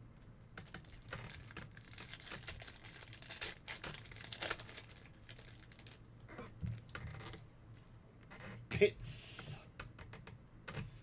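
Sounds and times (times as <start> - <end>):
foil wrapper crinkling and tearing: 0.6 - 6.0.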